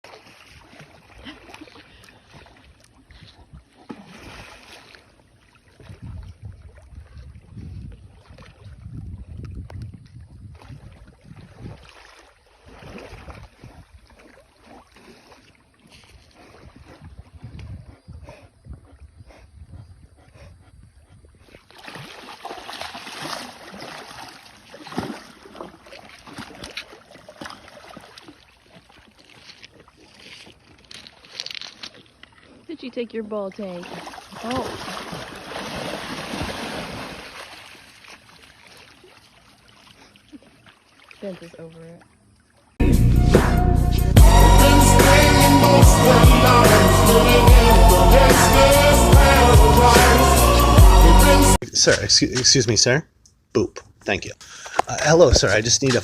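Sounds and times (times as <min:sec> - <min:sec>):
water splashing in a pool: 0:00.0 - 0:17.7, 0:21.2 - 0:42.8
low rumble: 0:42.8 - 0:51.5.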